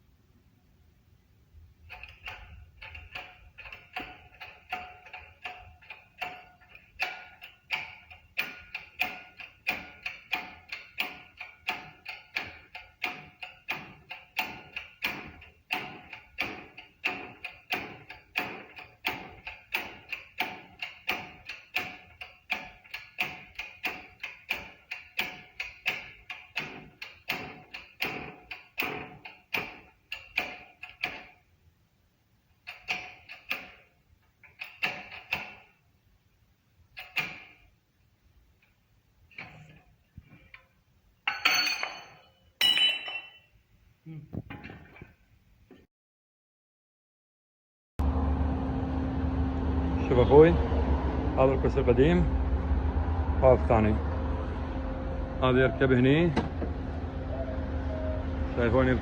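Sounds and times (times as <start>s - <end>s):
hammering on metal: 1.9s - 31.3s.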